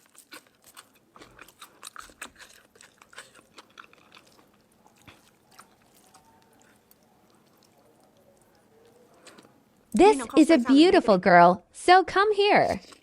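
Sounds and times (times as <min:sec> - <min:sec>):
person chewing crunchy food: 0:00.0 - 0:09.9, 0:12.7 - 0:13.0.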